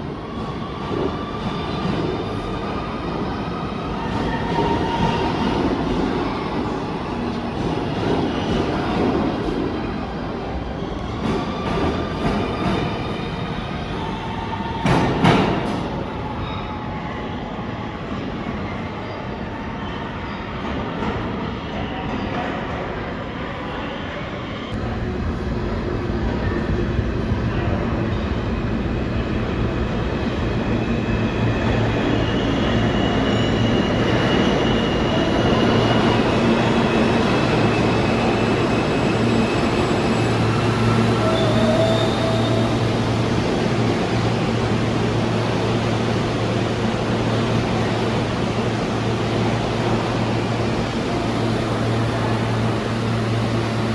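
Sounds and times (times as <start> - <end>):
train wheels rumbling on rail: 0.0 - 16.0
subway train rumbling on rails: 0.0 - 53.9.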